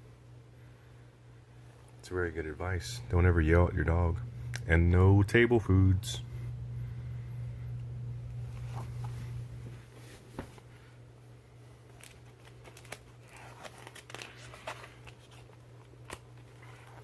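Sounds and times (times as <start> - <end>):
steady low hum: 0.0 - 17.0
book pages turning: 8.5 - 10.6, 11.8 - 17.0
paper crinkling: 11.8 - 17.0.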